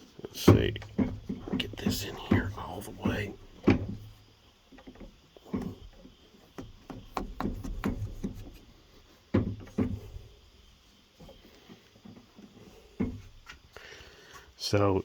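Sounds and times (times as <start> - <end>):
low bumping: 0.0 - 13.6
knocks and taps on door frame: 0.5 - 4.0, 6.6 - 8.6.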